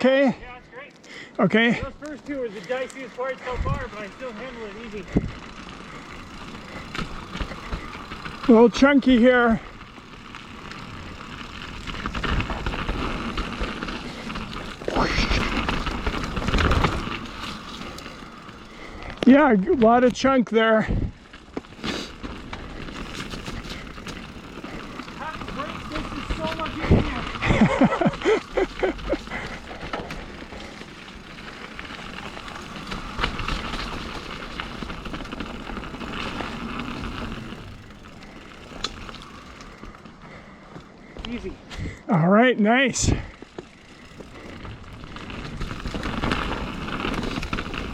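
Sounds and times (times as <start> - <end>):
bike tyres over rock and dirt: 0.0 - 47.9
wind noise: 3.4 - 4.0, 5.0 - 5.5, 20.8 - 21.2, 25.7 - 28.1.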